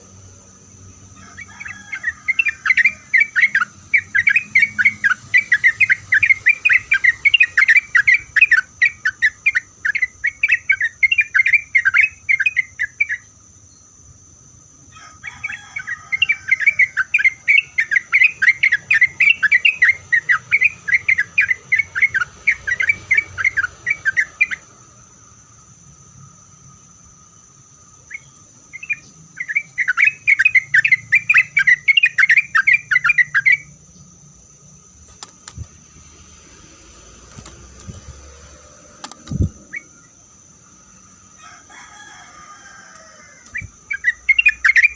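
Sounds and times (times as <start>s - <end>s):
high-pitched insect hum: 0.0s - 44.9s
bird chattering song: 0.7s - 14.0s, 15.3s - 24.7s, 28.0s - 34.2s, 43.4s - 44.9s.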